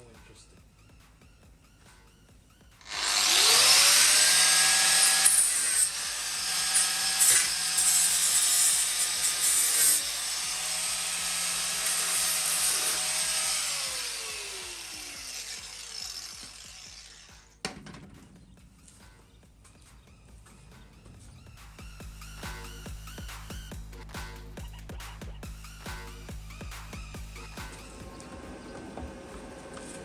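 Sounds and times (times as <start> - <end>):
angle grinder on metal: 2.8 - 17.7.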